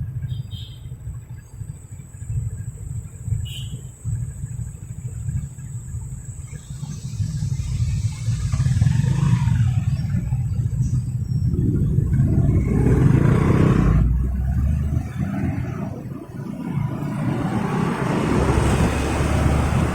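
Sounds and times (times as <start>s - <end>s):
motorcycle engine rumble: 0.0s - 19.9s
wind on microphone: 6.8s - 19.9s.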